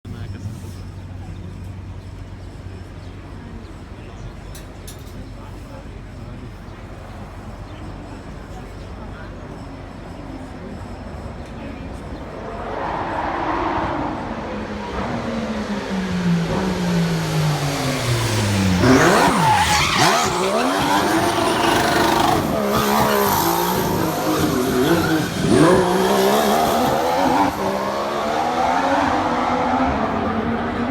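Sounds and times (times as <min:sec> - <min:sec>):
racing car engine revving: 0:11.8 - 0:30.9.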